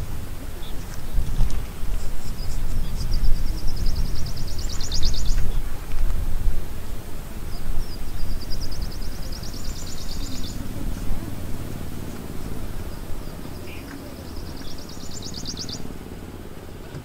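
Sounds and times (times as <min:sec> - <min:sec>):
low outdoor rumble: 0:00.0 - 0:17.0
songbird singing high quick notes: 0:01.9 - 0:05.6, 0:07.4 - 0:15.9.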